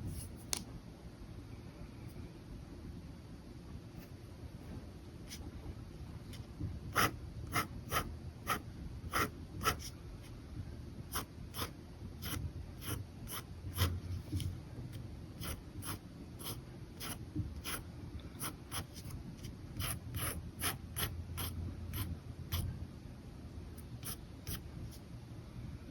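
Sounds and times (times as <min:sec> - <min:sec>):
pen scratching on paper: 0:06.9 - 0:09.9, 0:11.1 - 0:14.5, 0:15.4 - 0:17.8, 0:18.4 - 0:22.7, 0:24.0 - 0:24.6.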